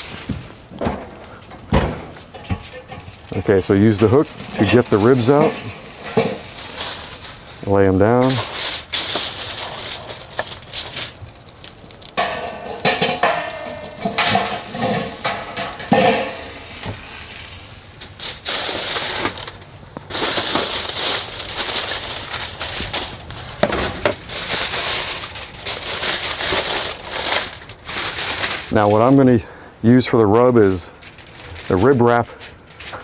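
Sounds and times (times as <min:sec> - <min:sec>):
aluminium foil rustling: 0:00.0 - 0:33.0
metal hooks and basket clinking: 0:02.2 - 0:07.4, 0:12.2 - 0:16.8.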